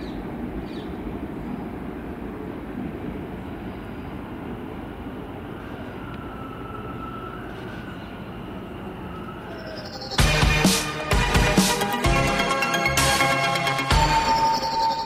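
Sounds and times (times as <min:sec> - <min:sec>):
train rumbling: 0:00.0 - 0:15.0
faint high whine: 0:00.1 - 0:10.3.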